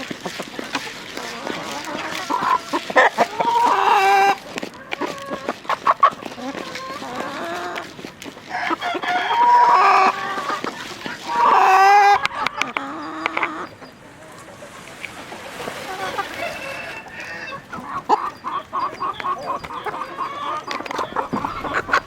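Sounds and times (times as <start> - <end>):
chickens calling: 0.0 - 22.0
rooster crowing: 8.4 - 10.4, 16.2 - 17.8.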